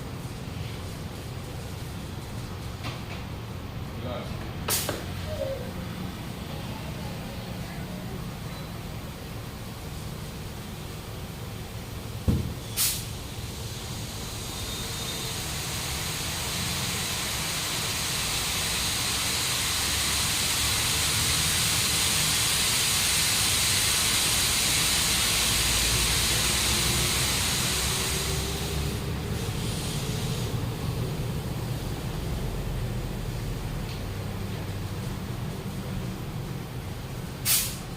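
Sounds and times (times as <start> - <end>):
knock: 12.3 - 12.5
air hissing through tyre valve: 12.6 - 30.7, 37.4 - 37.9.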